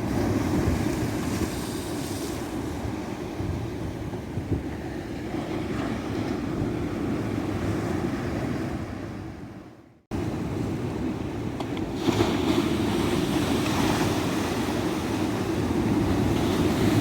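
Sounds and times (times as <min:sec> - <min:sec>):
ocean surf washing onto beach: 0:10.2 - 0:17.0.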